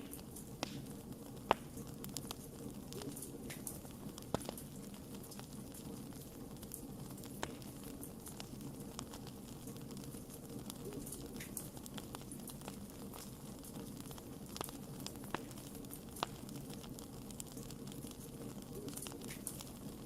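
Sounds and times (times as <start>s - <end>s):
fire pops and snaps: 0.0s - 20.0s
wood fire crackling: 0.0s - 20.0s.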